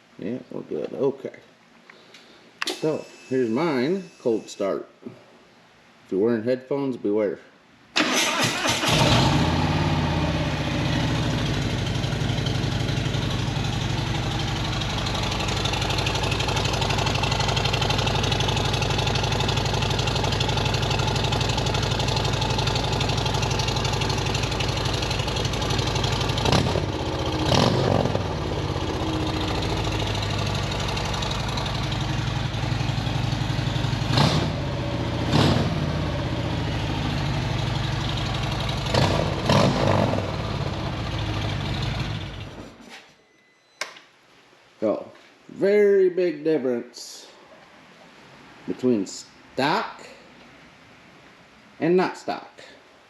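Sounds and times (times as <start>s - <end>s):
motorcycle engine idling loudly: 10.3s - 42.4s.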